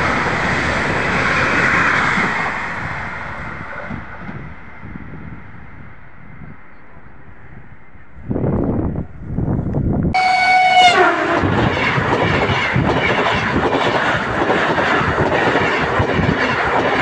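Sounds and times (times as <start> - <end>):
train cars rushing and clattering: 0.0 - 9.6, 10.2 - 17.0
train horn: 10.2 - 12.8.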